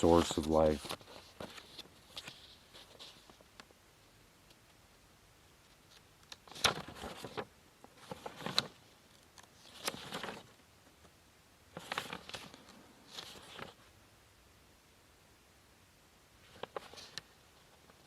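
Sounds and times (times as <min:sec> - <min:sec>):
crisp rustling: 0:00.0 - 0:03.5, 0:05.7 - 0:10.6, 0:11.7 - 0:13.9, 0:16.4 - 0:18.0.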